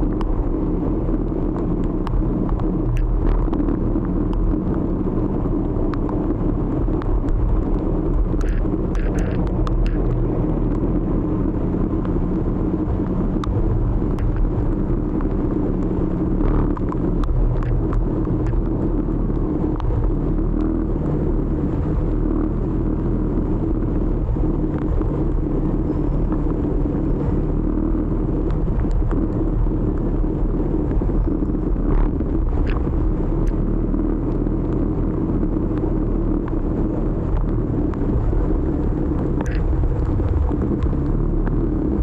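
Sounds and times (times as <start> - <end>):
motor scooter engine rumble: 0.0 - 42.0
faint clicks: 5.9 - 6.2, 6.9 - 10.8, 16.5 - 20.0, 30.9 - 33.6, 37.2 - 42.0.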